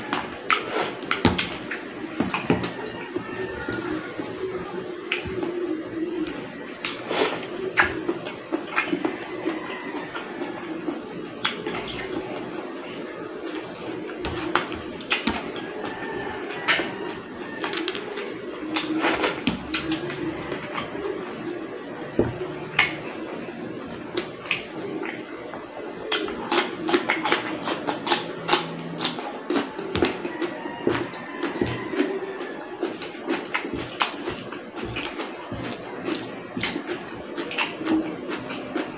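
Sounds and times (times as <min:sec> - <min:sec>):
chewing and lip-smacking: 0:00.0 - 0:03.8, 0:05.0 - 0:21.4, 0:22.0 - 0:23.2, 0:23.8 - 0:38.9
cucumber crunching: 0:26.1 - 0:38.9.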